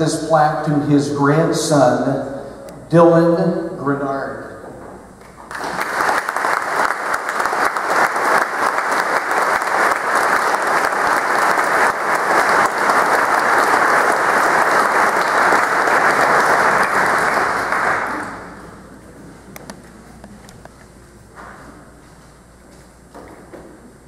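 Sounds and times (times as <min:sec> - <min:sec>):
crowd applauding: 0:05.4 - 0:18.7.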